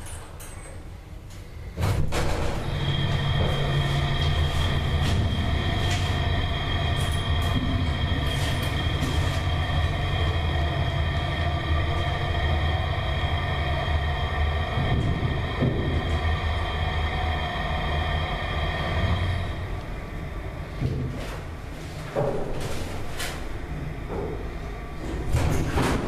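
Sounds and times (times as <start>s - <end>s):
elevator hum: 0.0s - 26.0s
high-pitched whine: 1.5s - 21.3s.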